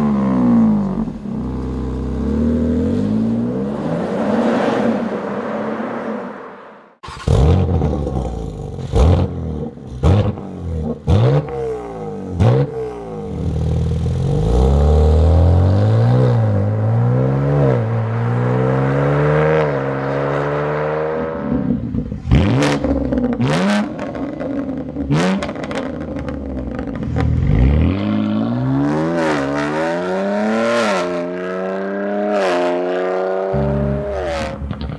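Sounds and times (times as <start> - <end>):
car engine revving: 0.0 - 34.9
exhaust cracks and pops: 34.6 - 34.9.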